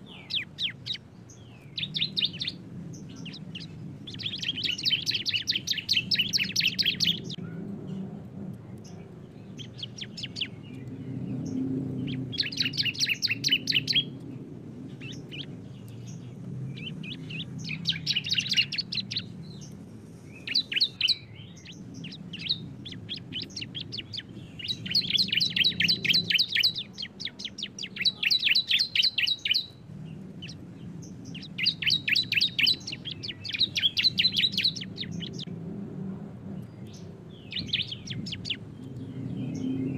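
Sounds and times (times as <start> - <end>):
birds singing rattling trills: 0.0 - 35.5, 36.4 - 39.9.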